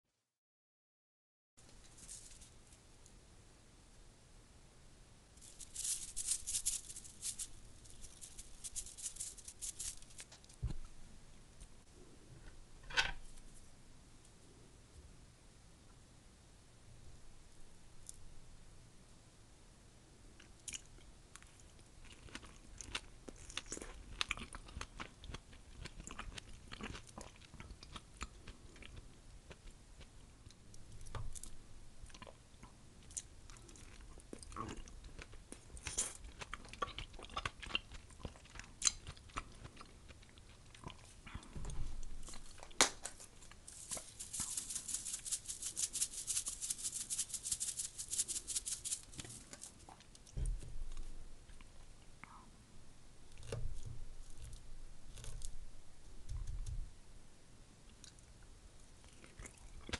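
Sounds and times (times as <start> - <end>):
seasoning shaken onto tray: 5.4 - 10.4, 43.1 - 49.7.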